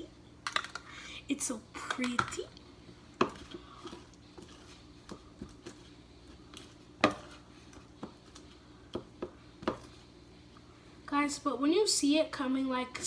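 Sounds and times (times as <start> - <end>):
utensil stirring slime in a bowl: 1.9 - 10.2.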